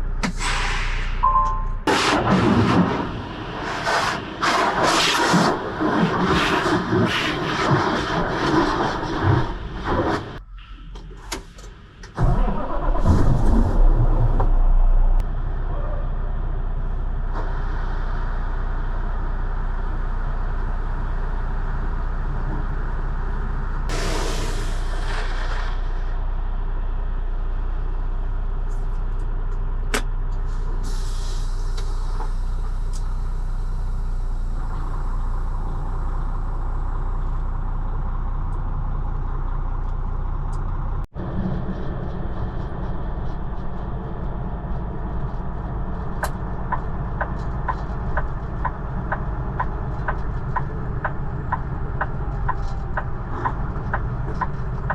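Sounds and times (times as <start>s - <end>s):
diesel truck engine starting and idling: 0.0s - 7.0s, 7.6s - 54.9s
air release hiss: 0.2s - 1.3s, 23.9s - 25.9s, 30.8s - 33.0s.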